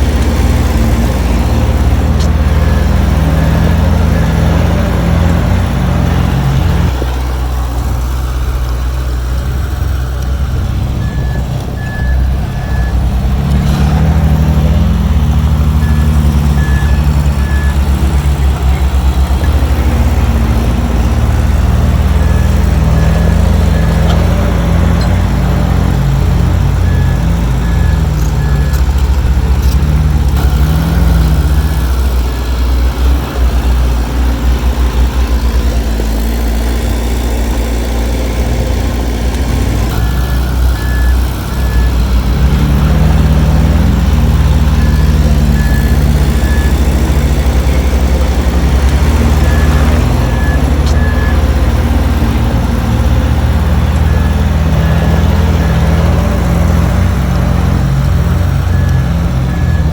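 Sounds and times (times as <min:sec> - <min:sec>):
heavy diesel engine under load: 0:00.0 - 0:59.9
reversing alarm beeps: 0:11.0 - 0:13.1, 0:15.8 - 0:18.2, 0:39.9 - 0:42.0, 0:44.7 - 0:51.5, 0:58.6 - 0:59.9.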